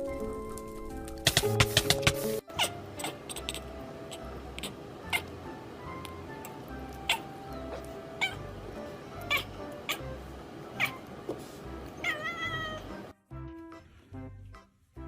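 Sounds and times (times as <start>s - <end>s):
cat meowing: 7.1s - 8.4s, 9.3s - 10.1s, 10.8s - 11.0s, 12.0s - 13.0s
background music with low beat: 13.2s - 15.0s.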